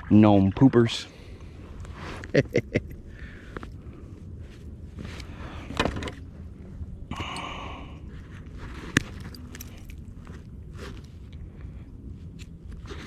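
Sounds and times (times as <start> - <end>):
low wind rumble: 1.0 - 13.0
fishing gear clicks and knocks: 8.5 - 11.1.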